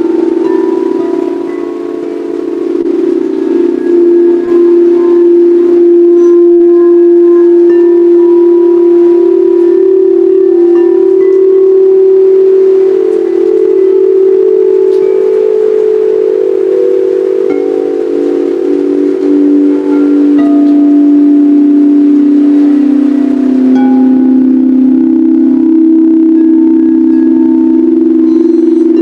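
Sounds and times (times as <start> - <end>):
singing bowls ringing: 0.0 - 29.0.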